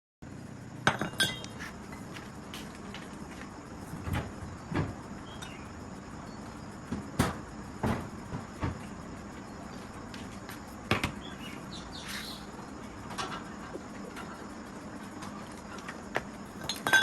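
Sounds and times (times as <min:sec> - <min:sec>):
hand tools knocking and clanking: 0:00.9 - 0:01.6, 0:16.1 - 0:17.0.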